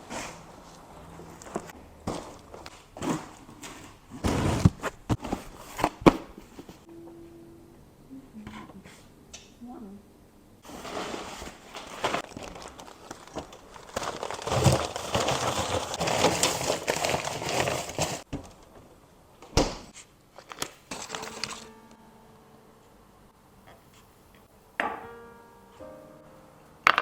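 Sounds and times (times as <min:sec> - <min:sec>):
crinkling and rustling: 0:00.0 - 0:06.9, 0:10.6 - 0:21.8.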